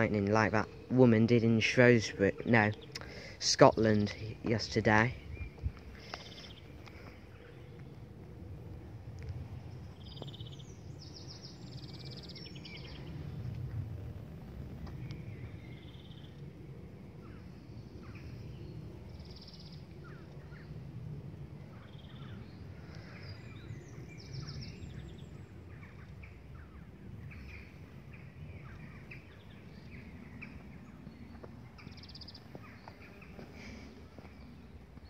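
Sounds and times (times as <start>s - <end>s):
birds chirping and trilling: 0.0s - 35.0s
low outdoor rumble: 0.0s - 35.0s.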